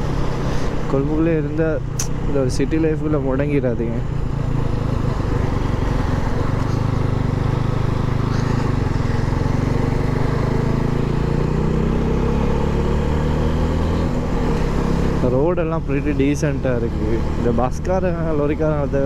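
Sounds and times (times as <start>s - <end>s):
motorcycle engine running: 1.7s - 19.0s.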